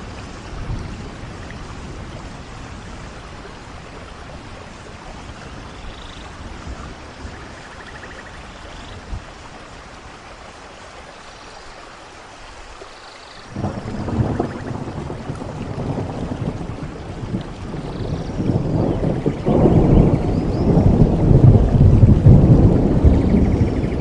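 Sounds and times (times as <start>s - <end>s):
thunder rumbling: 0.0s - 8.3s, 13.5s - 24.0s
rain falling: 0.0s - 24.0s.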